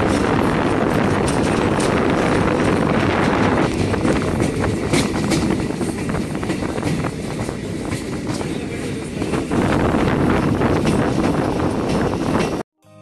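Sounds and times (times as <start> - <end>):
train wheels rumbling on rails: 0.0 - 12.6
wind rushing past: 9.2 - 12.6.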